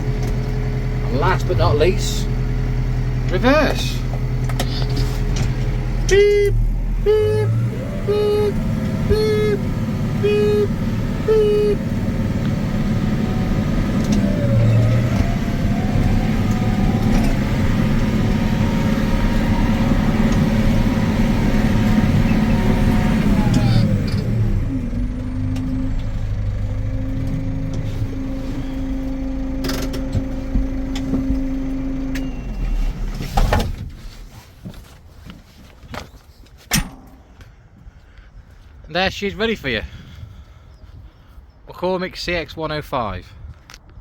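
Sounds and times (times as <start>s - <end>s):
tractor diesel engine: 0.0s - 35.6s, 36.7s - 37.9s.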